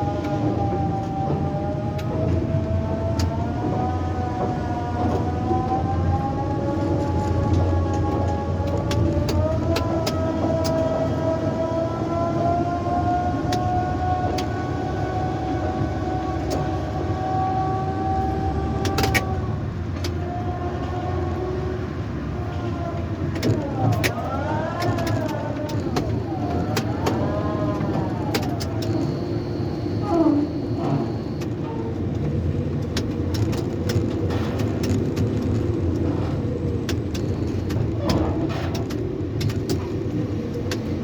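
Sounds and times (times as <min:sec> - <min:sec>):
crane motors whining: 0:00.0 - 0:32.8
faint high beep: 0:28.8 - 0:31.4.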